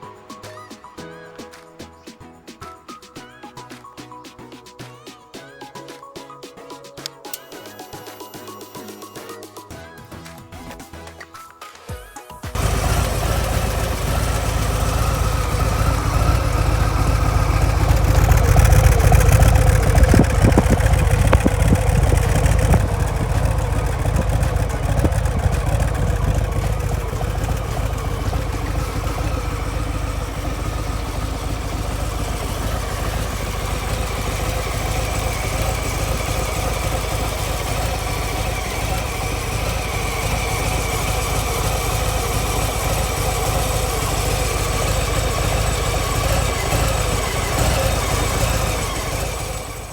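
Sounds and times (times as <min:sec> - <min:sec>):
motorcycle engine idling: 0:12.6 - 0:49.9.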